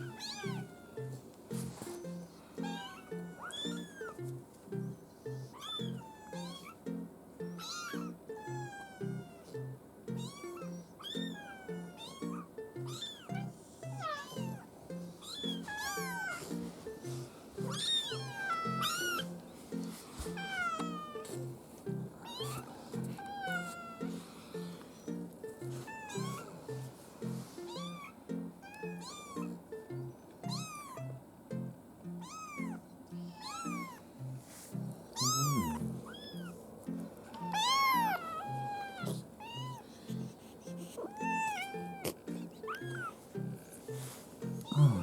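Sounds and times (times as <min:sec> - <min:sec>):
kitten meowing: 0:00.0 - 0:00.9, 0:02.6 - 0:04.2, 0:05.6 - 0:06.8, 0:07.6 - 0:09.5, 0:10.2 - 0:14.6, 0:15.2 - 0:16.4, 0:17.7 - 0:19.2, 0:20.3 - 0:21.3, 0:22.2 - 0:24.1, 0:25.8 - 0:26.8, 0:27.7 - 0:29.6, 0:30.4 - 0:31.0, 0:32.2 - 0:34.0, 0:35.1 - 0:36.6, 0:37.3 - 0:40.2, 0:41.0 - 0:43.2
background music with low notes: 0:00.0 - 0:45.0.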